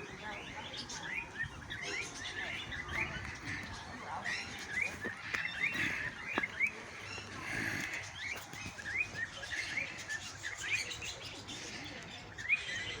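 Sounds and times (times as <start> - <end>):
budgerigars chattering: 0.0 - 13.0.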